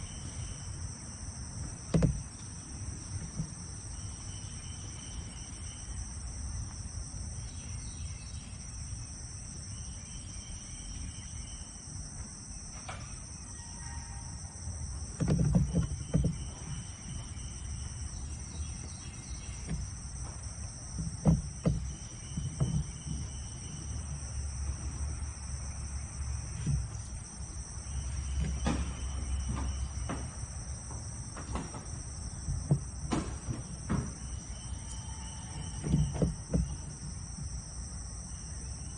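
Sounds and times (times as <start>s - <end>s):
high insect trill: 0.0s - 38.9s
insect chorus: 0.0s - 38.9s
knocks and rustles: 1.6s - 3.9s, 14.9s - 24.9s, 26.4s - 37.8s.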